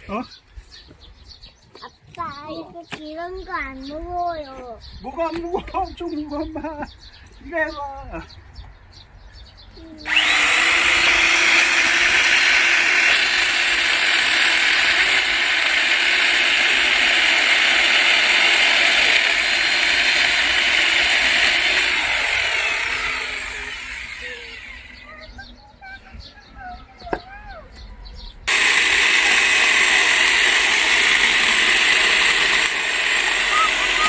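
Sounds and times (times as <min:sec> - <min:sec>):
electric chainsaw cutting log: 0:10.0 - 0:25.1, 0:28.5 - 0:34.0.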